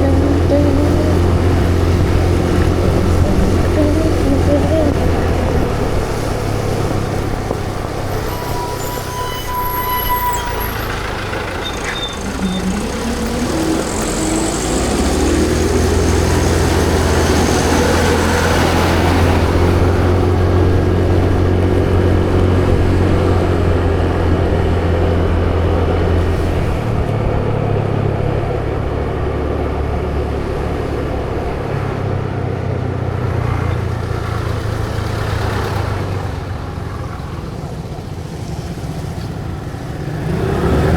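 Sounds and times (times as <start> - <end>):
vehicle engine running: 0.0 - 9.4, 10.2 - 40.9
road traffic noise: 0.0 - 40.9
short high tone: 7.9 - 15.7.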